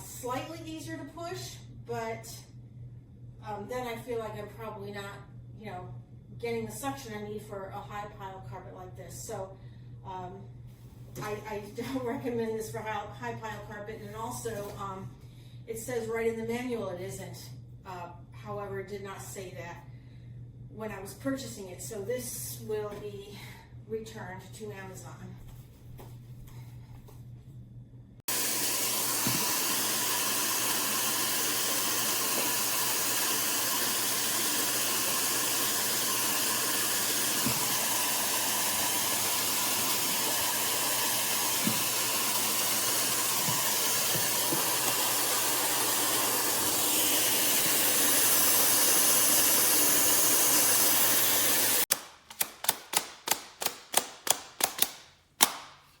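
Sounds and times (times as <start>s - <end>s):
vacuum cleaner running: 28.3s - 52.0s
sharp clicks: 51.9s - 55.6s.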